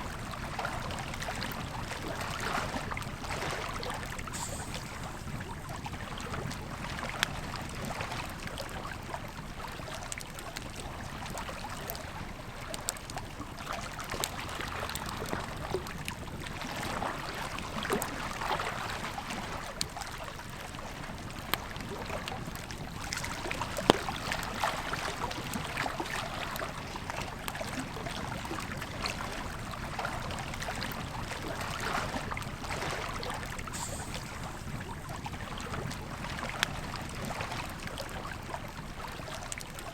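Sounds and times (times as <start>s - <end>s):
river flowing: 0.0s - 7.2s, 9.6s - 39.9s
campfire crackling and popping: 8.2s - 18.4s, 21.0s - 39.8s.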